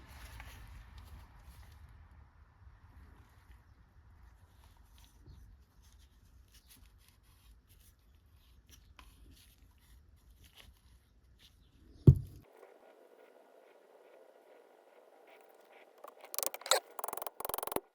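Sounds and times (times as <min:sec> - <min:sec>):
faint scratching and clicking: 0:12.4 - 0:17.9.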